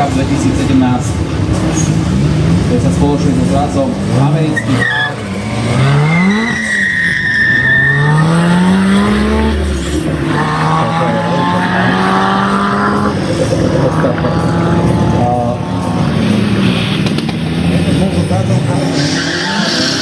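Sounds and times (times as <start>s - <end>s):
racing car engine accelerating: 0.2s - 20.0s
high squeal: 4.6s - 8.4s, 18.9s - 20.0s.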